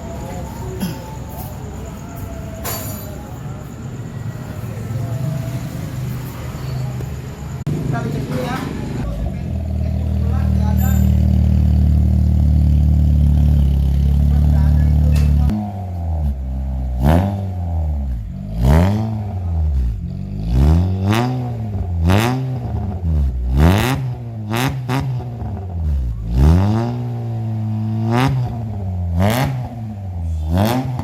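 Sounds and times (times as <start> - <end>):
car engine revving: 4.1 - 31.0.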